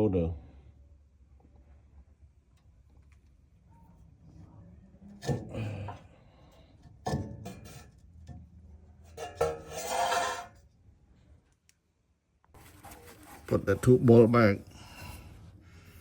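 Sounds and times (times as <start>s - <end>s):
metallic grinding rub: 9.1s - 10.7s, 12.6s - 16.0s.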